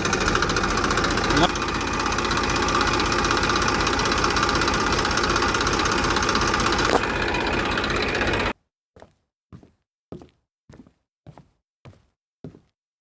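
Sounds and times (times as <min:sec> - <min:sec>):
small motor running: 0:00.0 - 0:08.5.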